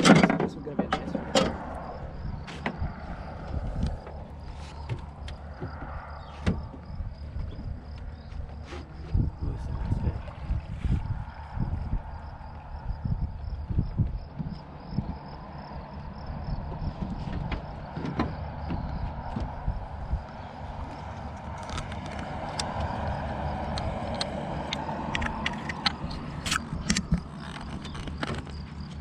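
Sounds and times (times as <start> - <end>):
wind and water rumble: 0.0 - 29.0.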